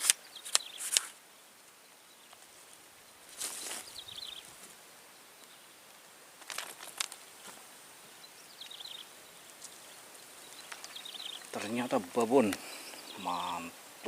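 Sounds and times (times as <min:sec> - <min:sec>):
brief rustles: 0:00.0 - 0:01.2, 0:06.4 - 0:07.6
twittering bird call: 0:08.3 - 0:13.8.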